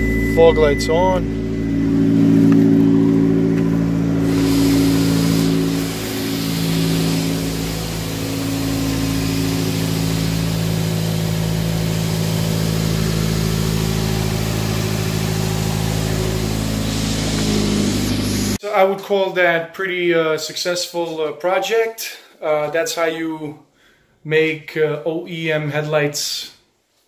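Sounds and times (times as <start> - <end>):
car engine idling: 0.0 - 18.6.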